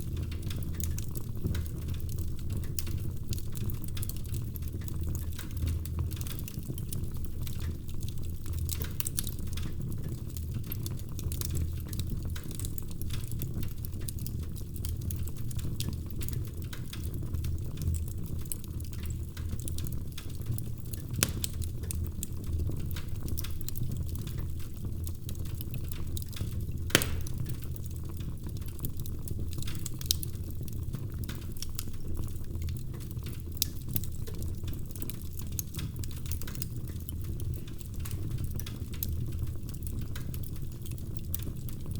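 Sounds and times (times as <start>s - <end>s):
low rumble of flames: 0.0s - 41.9s
wood fire crackling: 0.0s - 41.9s
sharp fire pops: 21.1s - 21.8s, 26.4s - 27.9s.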